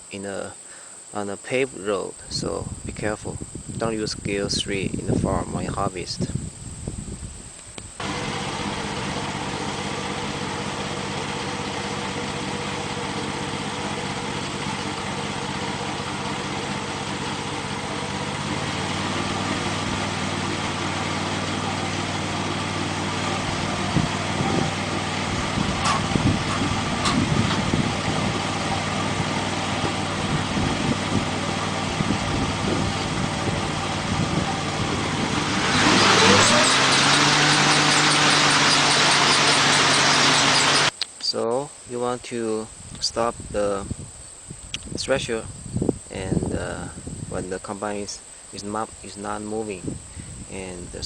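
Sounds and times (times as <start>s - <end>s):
knocks and clatter: 8.0s - 31.8s
gas engine running: 8.0s - 41.0s.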